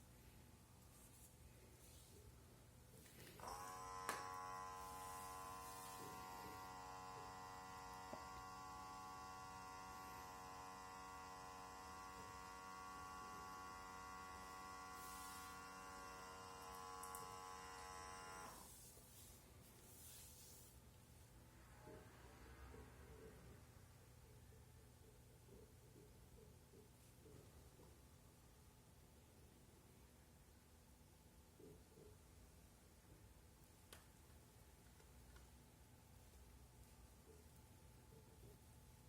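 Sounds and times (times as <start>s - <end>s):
electric fan motor humming: 3.3s - 18.8s.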